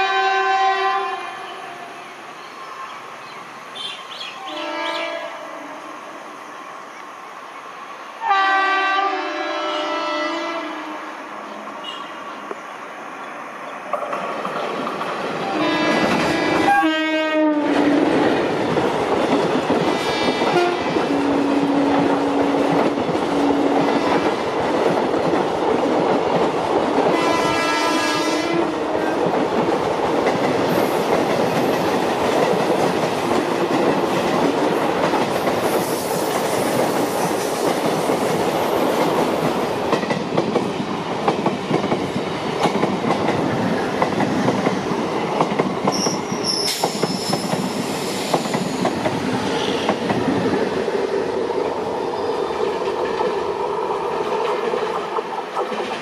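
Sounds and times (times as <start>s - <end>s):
train horn: 0.0s - 2.0s, 4.4s - 6.0s, 8.2s - 12.3s, 15.5s - 18.1s, 20.0s - 22.6s, 23.3s - 24.4s, 27.1s - 29.2s
train passing fast: 0.0s - 56.0s
train wheels rattling over rail joints: 13.8s - 16.9s, 17.6s - 56.0s.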